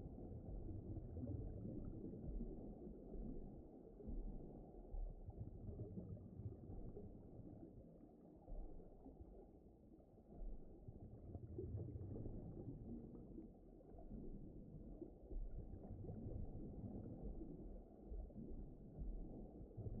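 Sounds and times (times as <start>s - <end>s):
muffled underwater ocean rumble: 0.0s - 20.0s.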